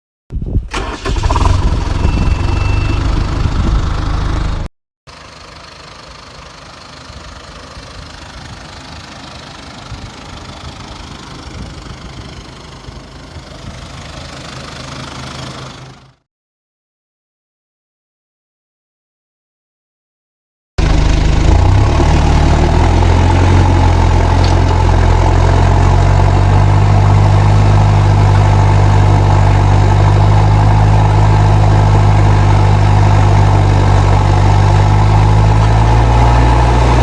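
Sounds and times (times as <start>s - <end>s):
tractor diesel engine running: 0.7s - 16.2s, 20.8s - 37.0s
high turbo whistle: 1.8s - 3.3s.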